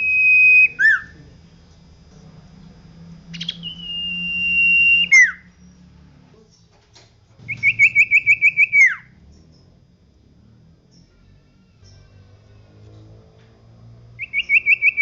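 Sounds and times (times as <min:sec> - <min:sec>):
bird whistling song: 0:00.0 - 0:01.2, 0:03.3 - 0:05.6, 0:07.4 - 0:09.6, 0:14.2 - 0:15.0.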